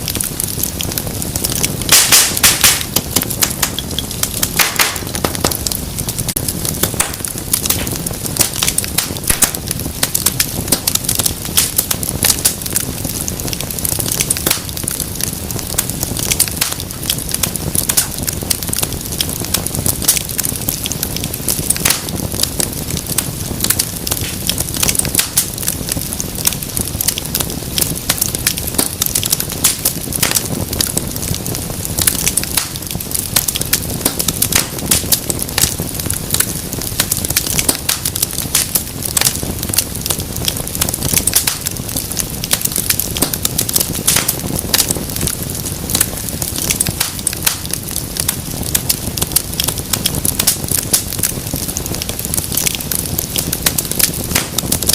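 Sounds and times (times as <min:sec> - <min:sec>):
low rumble of flame: 0:00.0 - 0:54.9
wood fire crackling: 0:00.0 - 0:54.9
sharp pops and snaps: 0:00.1 - 0:54.9.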